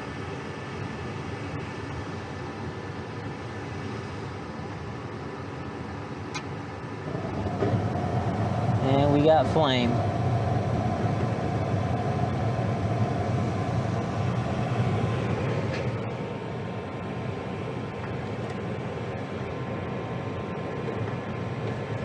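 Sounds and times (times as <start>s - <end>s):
gas furnace burners rumbling: 5.8s - 22.0s
draft inducer motor hum: 6.9s - 22.0s.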